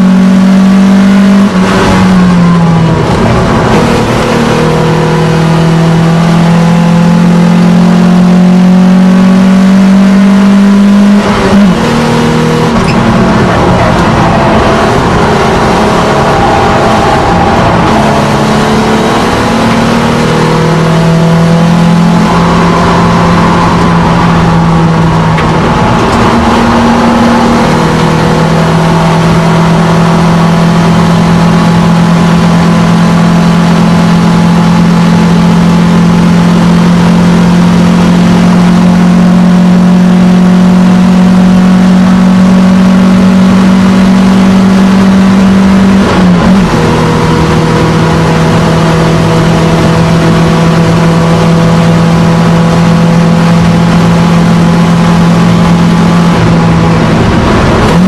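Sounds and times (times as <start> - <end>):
car engine droning: 0.0 - 58.0
road and wind noise: 0.0 - 58.0.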